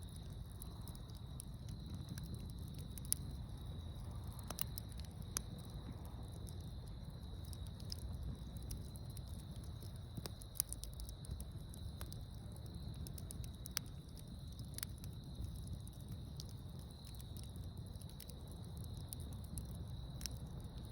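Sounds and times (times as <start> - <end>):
wood fire crackling and popping: 0.0 - 20.9.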